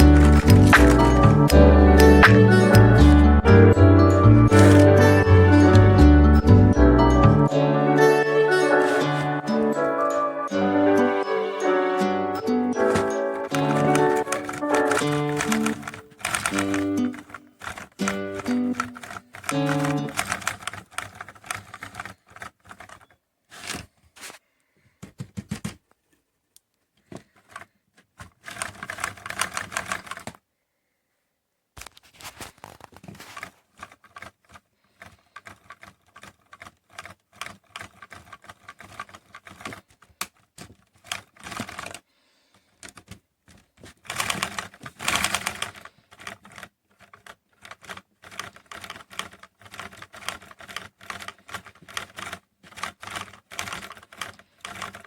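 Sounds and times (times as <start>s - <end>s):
toy engine clattering clicks: 0.0s - 1.6s, 12.8s - 23.9s, 27.1s - 30.4s, 32.6s - 55.0s.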